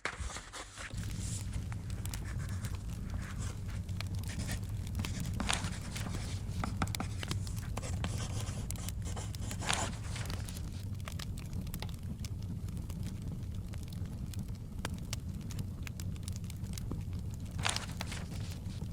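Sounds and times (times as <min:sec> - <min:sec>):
book pages turning: 0:00.0 - 0:11.2, 0:17.5 - 0:18.9
wood fire crackling and popping: 0:00.0 - 0:18.9.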